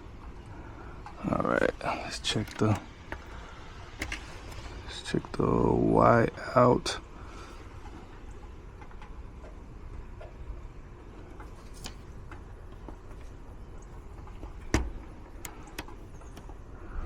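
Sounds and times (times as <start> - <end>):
low steady hum: 0.0 - 17.0
light clicks and taps of tools: 2.0 - 3.4, 11.4 - 16.8.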